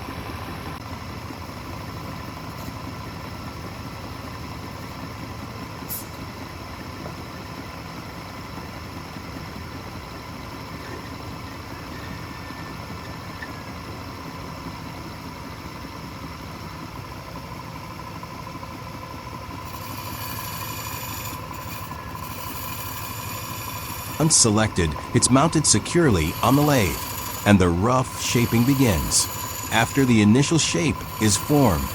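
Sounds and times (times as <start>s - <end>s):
wood lathe motor humming: 19.5s - 27.5s, 28.1s - 31.9s.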